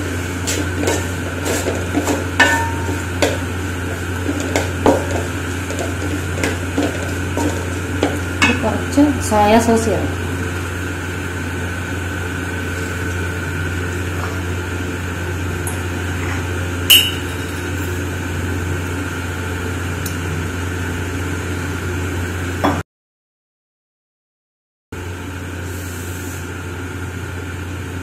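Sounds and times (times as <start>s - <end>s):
vegetables sizzling in oil: 0.0s - 16.0s
low hum: 0.0s - 22.6s
sharp clink: 16.9s - 18.0s.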